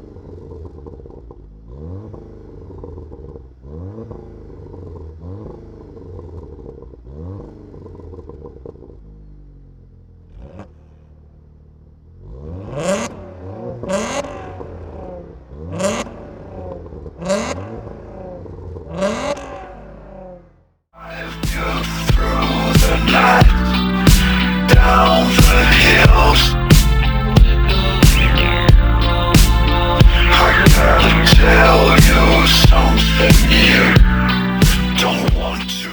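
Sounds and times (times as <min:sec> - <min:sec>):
car engine revving: 0:00.0 - 0:35.9.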